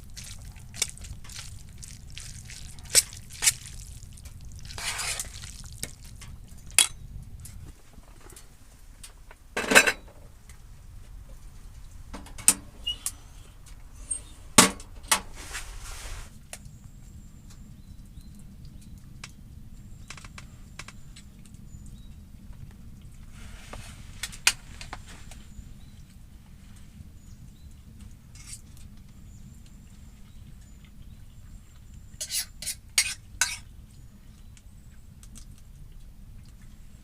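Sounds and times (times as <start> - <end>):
steady low rumble: 0.0 - 9.6
metal utensils clinking on cookware: 6.7 - 7.0, 32.2 - 33.6.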